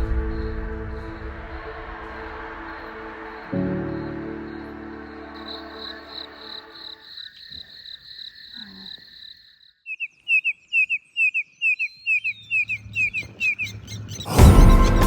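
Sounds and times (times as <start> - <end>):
birds trilling and whistling: 5.1 - 15.0
loud music: 14.3 - 15.0.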